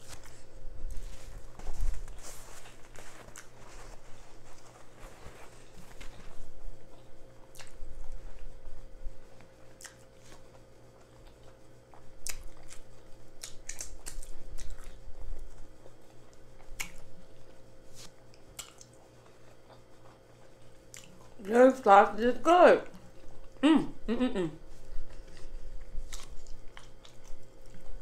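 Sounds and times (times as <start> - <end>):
chewing food: 0.1 - 21.6, 22.8 - 23.6, 24.7 - 28.0
wet lip smacks and clicks: 7.5 - 7.8, 9.8 - 10.0, 12.2 - 12.8, 13.4 - 15.0, 16.8 - 17.1, 18.3 - 19.0, 20.9 - 21.2.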